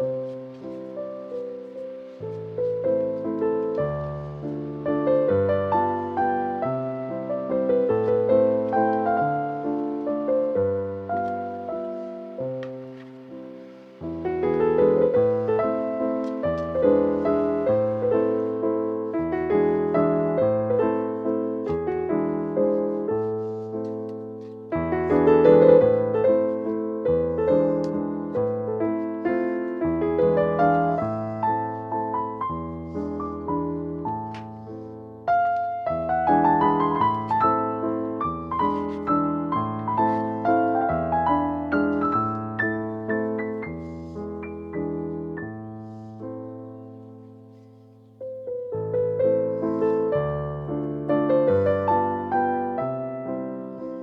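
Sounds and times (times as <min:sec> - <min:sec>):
piano piece: 0:00.0 - 0:54.0.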